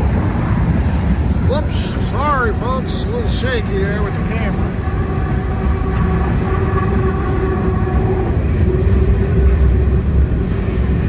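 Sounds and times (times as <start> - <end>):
rumble of wheels on rail: 0.0 - 11.0
high-pitched wheel squeal: 4.5 - 11.0.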